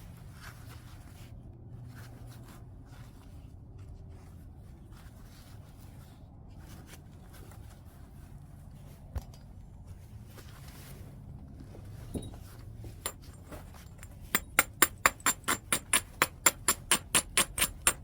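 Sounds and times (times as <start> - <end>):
low steady hum: 0.0 - 18.0
stone scraping strokes: 13.0 - 18.0
sharp stone knock: 14.0 - 18.0.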